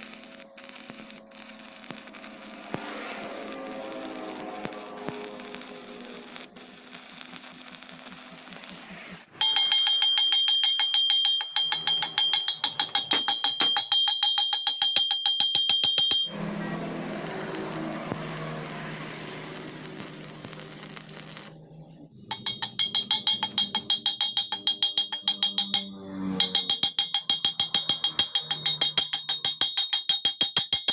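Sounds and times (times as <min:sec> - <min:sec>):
music with fast percussive beat: 0:22.3 - 0:30.9.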